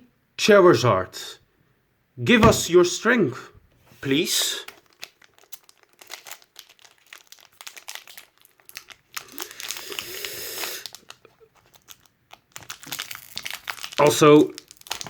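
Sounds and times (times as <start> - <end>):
foil wrapper crinkling: 4.6 - 15.0
foil pack tearing: 4.8 - 15.0.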